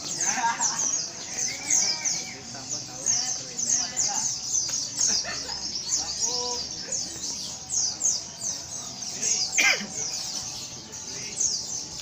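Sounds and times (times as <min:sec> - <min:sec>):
chorus of birds chirping: 0:00.0 - 0:12.0.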